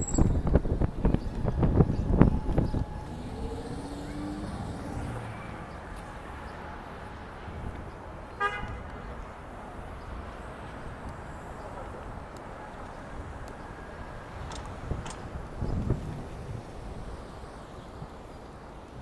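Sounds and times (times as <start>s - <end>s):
city street traffic: 0.0s - 19.0s
car horn toot: 8.4s - 8.9s.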